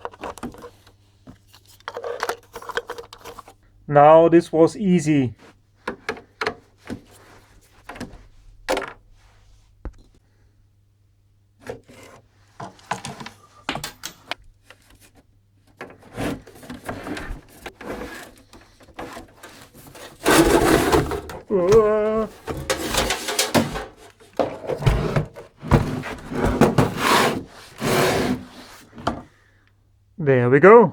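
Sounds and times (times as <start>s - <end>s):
clicks knocks and scrapes: 11.6s - 29.3s
loud rubbing scrape: 19.0s - 24.1s, 26.0s - 28.9s.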